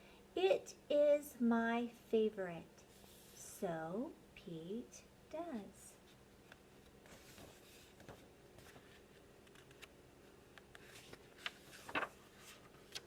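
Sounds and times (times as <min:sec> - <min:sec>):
rustles of handling: 0:06.8 - 0:09.9, 0:10.8 - 0:13.0.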